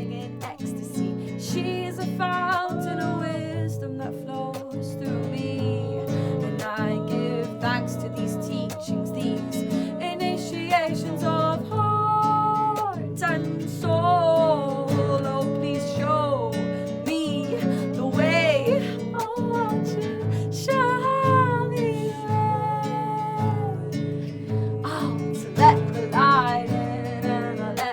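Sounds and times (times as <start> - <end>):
strummed acoustic guitar: 0.0 - 27.9.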